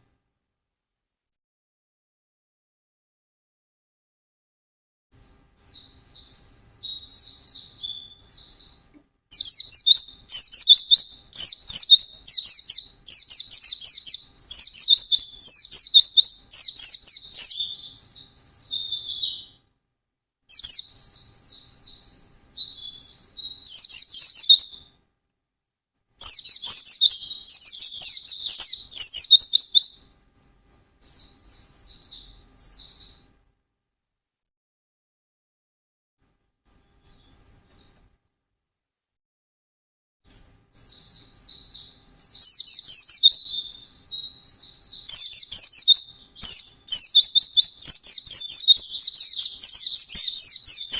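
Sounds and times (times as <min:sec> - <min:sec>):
bird twittering song: 0:05.2 - 0:19.6, 0:20.5 - 0:24.9, 0:26.2 - 0:33.3, 0:36.2 - 0:38.0, 0:40.3 - 0:50.9.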